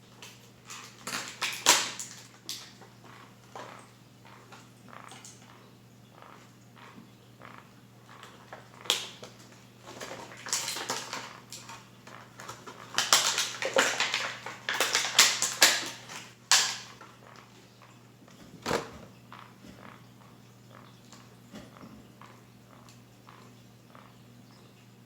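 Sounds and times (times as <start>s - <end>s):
packaging crackling and crinkling: 0.0s - 5.6s, 8.1s - 20.0s.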